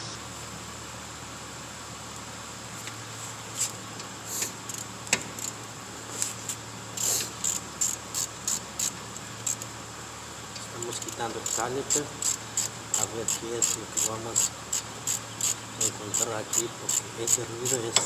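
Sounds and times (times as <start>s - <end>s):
steady low hum: 0.0s - 18.0s
ratchet clicking: 3.6s - 5.6s, 7.0s - 9.8s, 10.5s - 18.0s.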